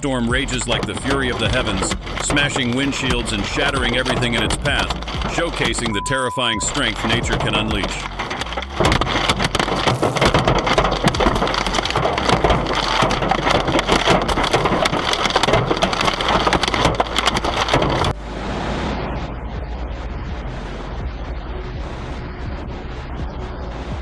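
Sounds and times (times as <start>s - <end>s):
hailstones pelting hard surfaces: 0.0s - 18.2s.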